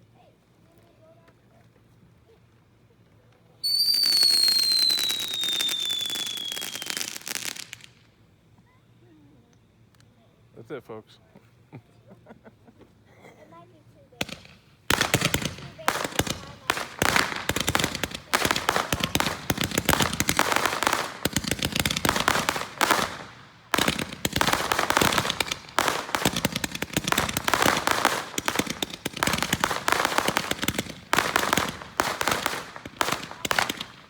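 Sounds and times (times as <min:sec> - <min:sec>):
fireworks crackling bangs: 0:03.7 - 0:08.0, 0:14.1 - 0:34.0.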